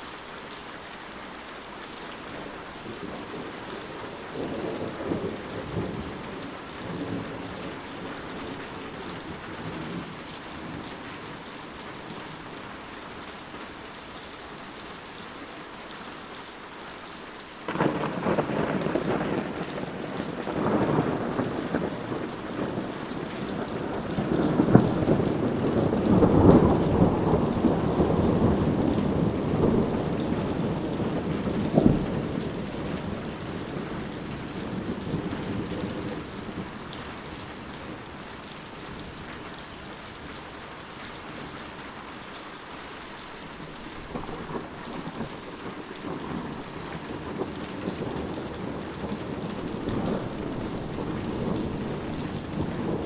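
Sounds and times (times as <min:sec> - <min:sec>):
steady rain: 0:00.0 - 0:53.0
rolling thunder: 0:02.8 - 0:11.0, 0:17.7 - 0:38.2, 0:44.0 - 0:53.0.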